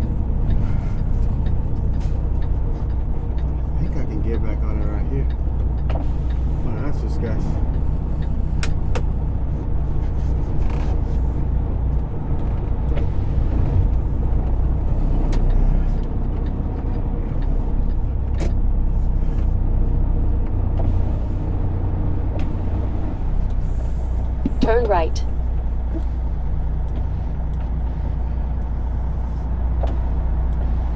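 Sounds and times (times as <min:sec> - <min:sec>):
diesel truck engine droning: 0:00.0 - 0:30.9.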